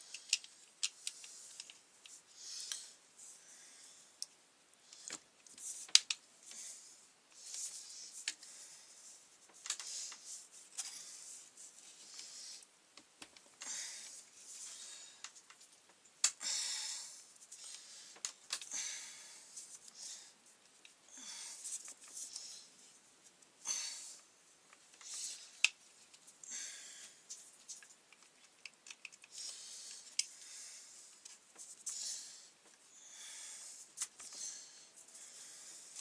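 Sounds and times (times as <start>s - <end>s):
hand tools and plastic parts handled: 0.1s - 2.8s, 27.3s - 30.3s.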